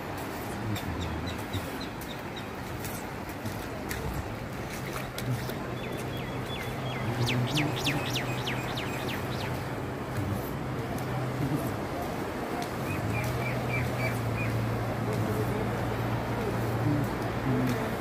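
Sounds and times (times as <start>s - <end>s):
low engine-like hum: 3.0s - 18.0s.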